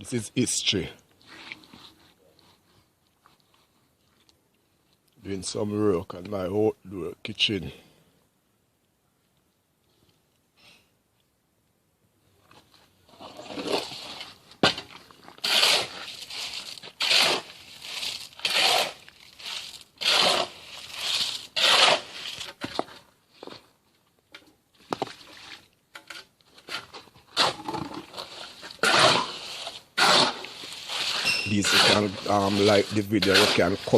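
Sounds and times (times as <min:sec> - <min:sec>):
tool scraping wet concrete: 0:13.1 - 0:23.6, 0:25.0 - 0:33.9.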